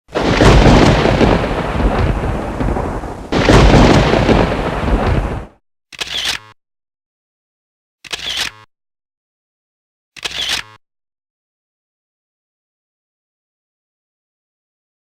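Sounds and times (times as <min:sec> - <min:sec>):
thunder claps rumbling: 0:00.1 - 0:05.6.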